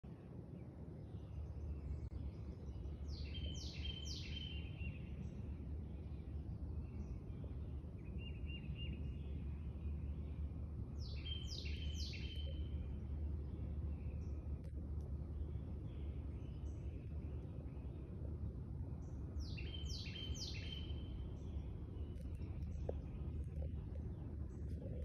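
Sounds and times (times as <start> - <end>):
steady low rumble: 0.0 - 25.0
songbird calling: 1.3 - 14.7, 19.0 - 25.0.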